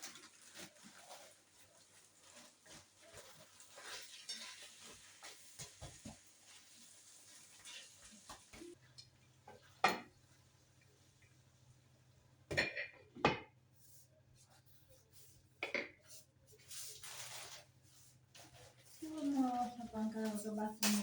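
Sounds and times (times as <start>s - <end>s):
kitchenware clattering: 3.2s - 6.2s, 9.5s - 10.2s, 12.5s - 13.5s, 15.6s - 16.0s, 20.1s - 21.0s.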